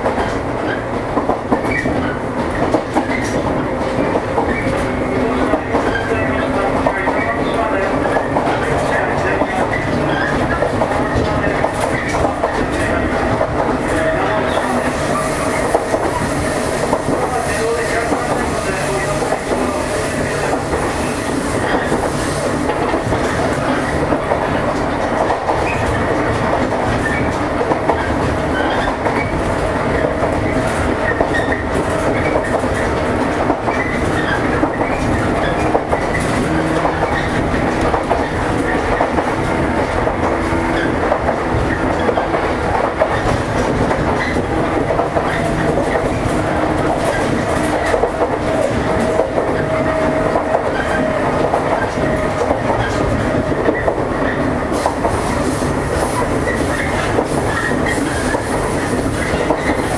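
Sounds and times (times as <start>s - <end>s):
rail joints clacking: 0.0s - 59.9s
train wheels rumbling on rail: 0.0s - 59.9s.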